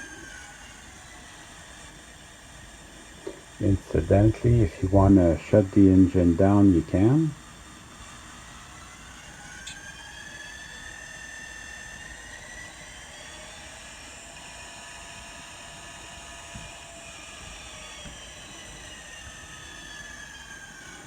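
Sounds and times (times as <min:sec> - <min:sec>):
diesel engine sound from small speaker: 0:02.5 - 0:14.2.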